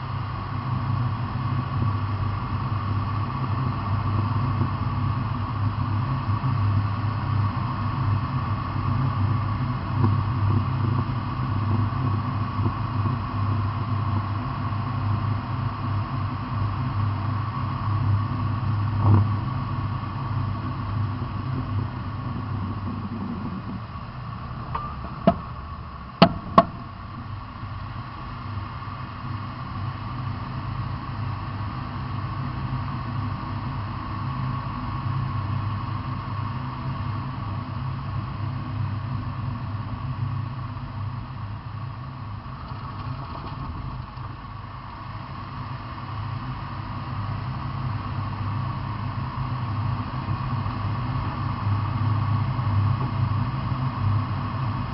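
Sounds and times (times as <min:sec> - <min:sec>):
vehicle engine idling: 0:20.5 - 0:29.2.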